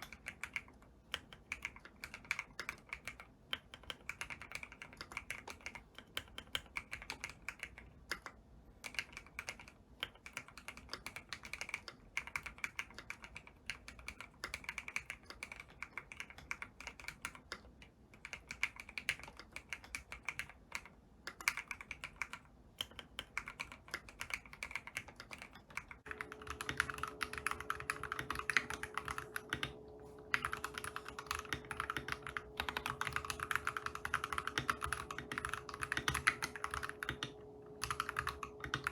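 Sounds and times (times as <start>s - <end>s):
keyboard typing clicks: 22.9s - 38.9s
steady hum: 26.0s - 38.9s.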